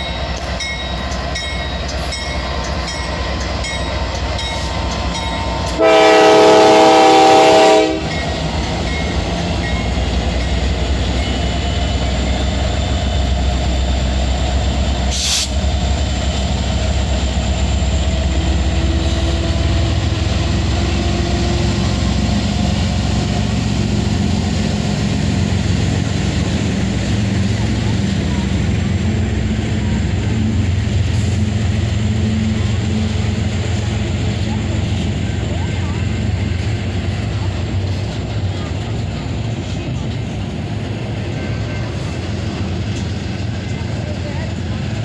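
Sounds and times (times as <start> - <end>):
freight train passing: 0.0 - 45.0
locomotive air horn blast: 5.6 - 8.2.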